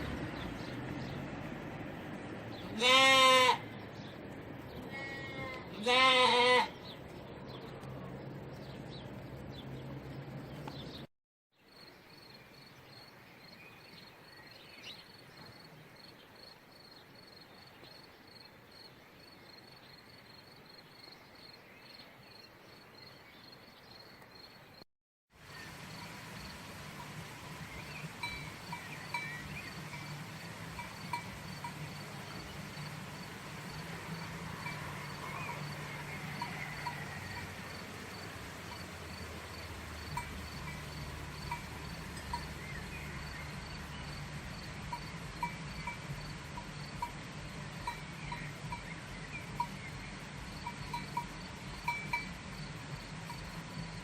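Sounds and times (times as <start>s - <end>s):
goat or sheep bleating: 2.8s - 3.6s, 4.9s - 6.8s.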